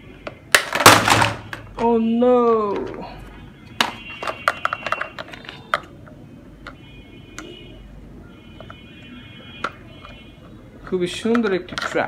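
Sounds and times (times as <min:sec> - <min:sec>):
plastic toy clicks and knocks: 0:00.5 - 0:01.9, 0:03.8 - 0:05.9, 0:10.8 - 0:12.0.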